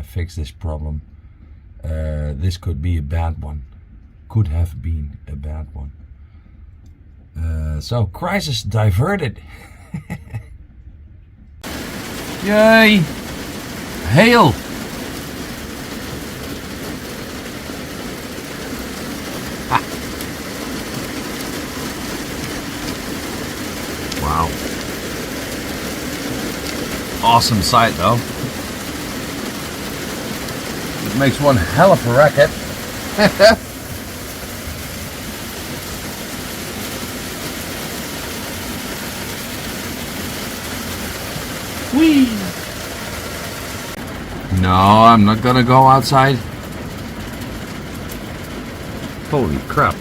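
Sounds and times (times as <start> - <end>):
hail pelting a roof: 11.6 - 50.0.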